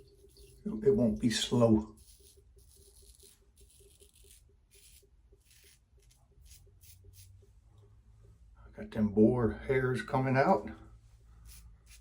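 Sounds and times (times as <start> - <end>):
razor scraping stubble: 0.0 - 7.4, 11.4 - 12.0.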